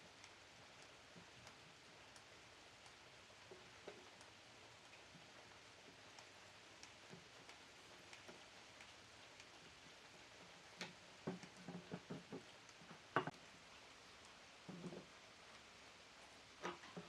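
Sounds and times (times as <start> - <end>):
light taps and knocks: 10.8 - 13.4, 14.6 - 15.1.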